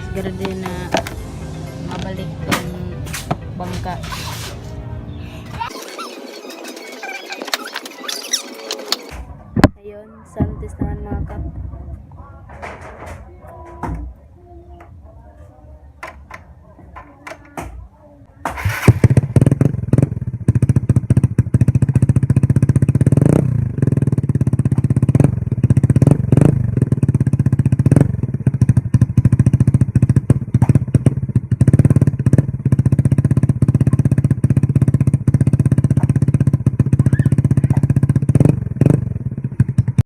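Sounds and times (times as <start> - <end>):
scooter engine idling: 18.6 - 40.0.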